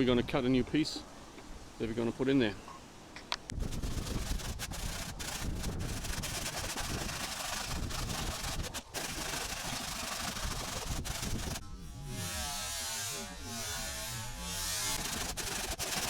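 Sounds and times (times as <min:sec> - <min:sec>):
brush scrubbing metal roof: 0:03.6 - 0:11.6, 0:12.2 - 0:16.0.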